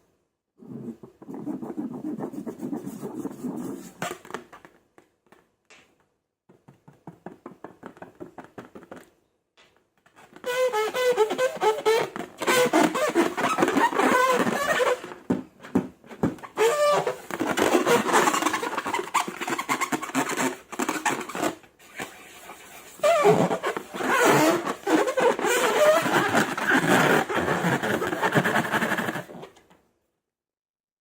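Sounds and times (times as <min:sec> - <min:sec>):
rubbery balloon squeaks: 0:00.6 - 0:04.5, 0:10.2 - 0:15.4, 0:16.2 - 0:29.5.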